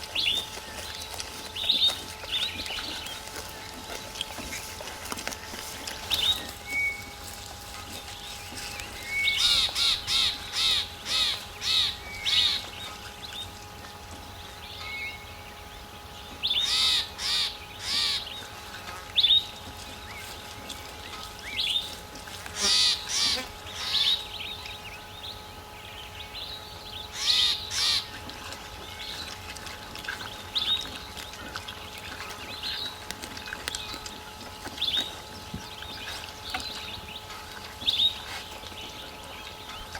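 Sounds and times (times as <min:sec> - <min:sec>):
faint steady hum: 0:00.0 - 0:39.9
bird calling loudly: 0:08.8 - 0:13.4, 0:16.4 - 0:18.4, 0:22.6 - 0:24.3, 0:27.0 - 0:28.2.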